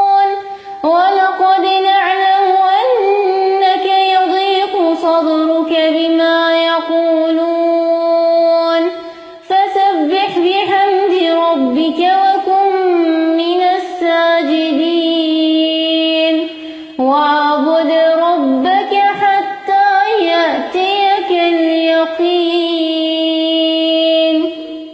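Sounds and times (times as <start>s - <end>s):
woman chanting melodically: 0.0s - 24.9s.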